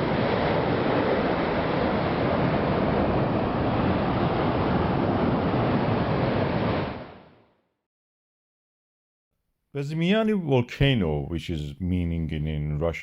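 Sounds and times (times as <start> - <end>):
volcano vent roaring: 0.0 - 7.4.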